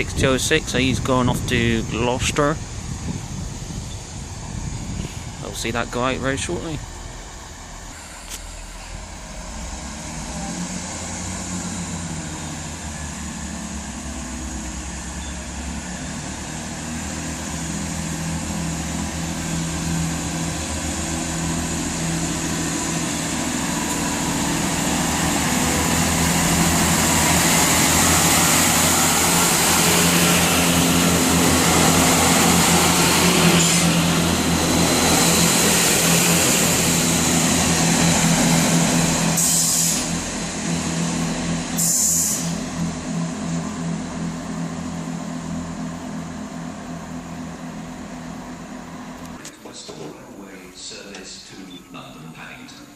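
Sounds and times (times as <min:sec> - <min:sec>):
diesel train engines humming: 0:00.0 - 0:52.9
hiss: 0:39.2 - 0:40.2, 0:41.7 - 0:42.7.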